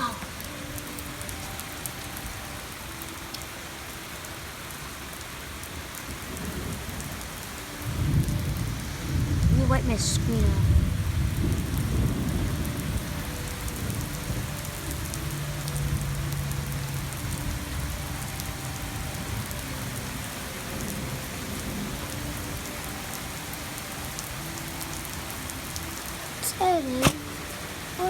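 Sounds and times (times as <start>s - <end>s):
pouring rain: 0.0s - 28.0s
thunder rumble: 7.8s - 15.0s.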